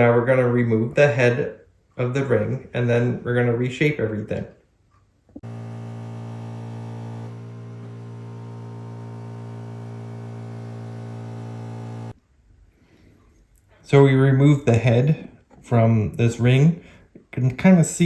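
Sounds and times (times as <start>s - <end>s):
electrical mains hum: 5.4s - 12.2s.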